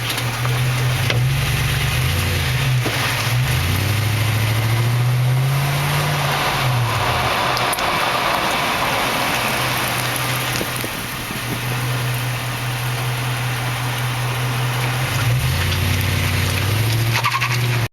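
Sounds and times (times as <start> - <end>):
road and tyre noise: 0.0 - 17.9
truck engine running: 0.0 - 17.9.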